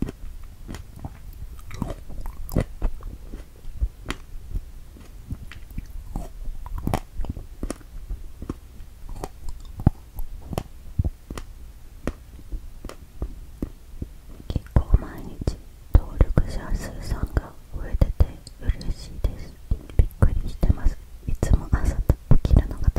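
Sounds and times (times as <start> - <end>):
chewing strawberry with mouth smacks: 0.0 - 14.8.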